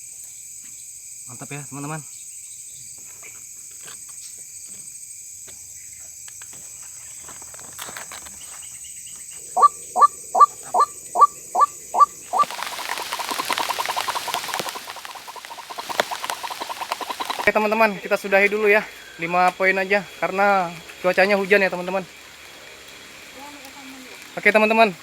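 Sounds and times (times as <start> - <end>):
high insect whine: 0.0 - 25.0
waterhen calling: 9.2 - 25.0
hiss of noise: 11.5 - 25.0.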